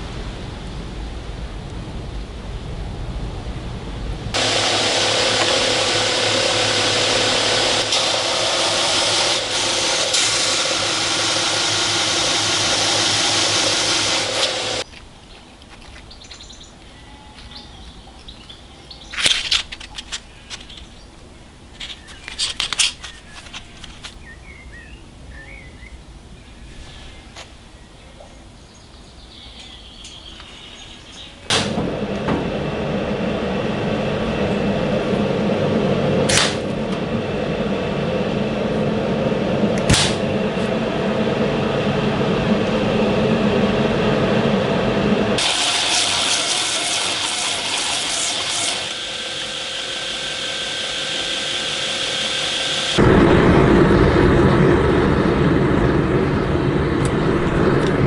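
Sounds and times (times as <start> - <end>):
shop machinery running: 4.3 - 14.9, 31.5 - 58.0.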